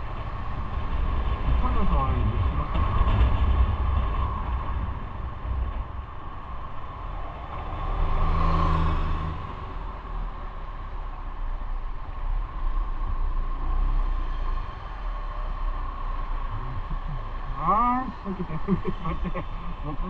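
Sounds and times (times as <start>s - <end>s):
road and wind noise: 0.0s - 20.0s
motorcycle engine rumble: 15.5s - 20.0s.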